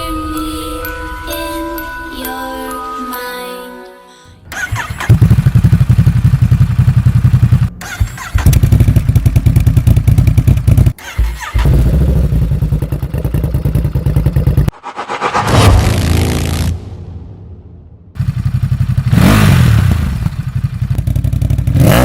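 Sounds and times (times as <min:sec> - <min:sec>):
soft music: 0:00.0 - 0:04.5
motorcycle engine pulsing: 0:04.5 - 0:14.7, 0:18.2 - 0:22.0.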